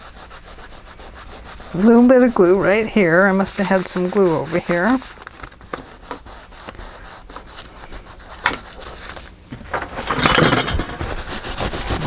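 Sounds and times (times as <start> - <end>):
hands rubbing paper: 0.0 - 9.4, 11.0 - 12.0
paper crinkles and taps: 5.0 - 6.8, 8.4 - 9.9.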